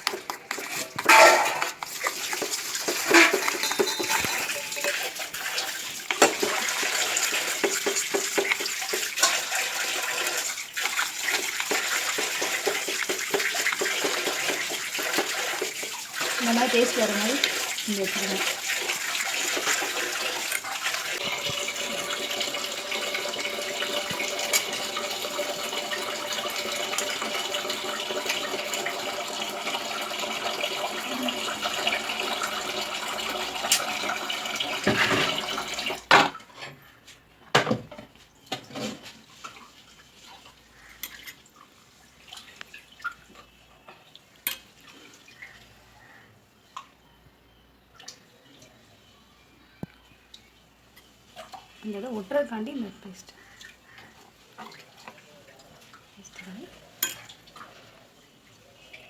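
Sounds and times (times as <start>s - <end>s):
tap water running into sink: 0.0s - 36.4s
dishes and utensils clinking: 0.1s - 9.8s, 21.2s - 27.1s, 34.8s - 36.8s.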